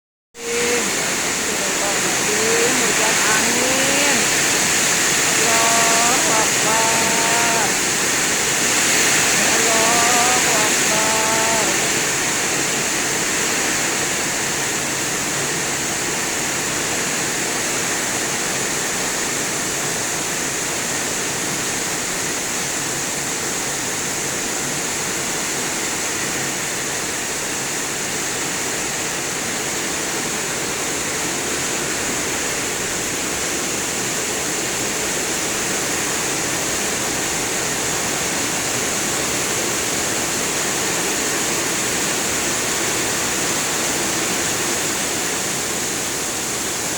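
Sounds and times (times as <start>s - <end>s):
heavy rain falling: 0.4s - 46.9s.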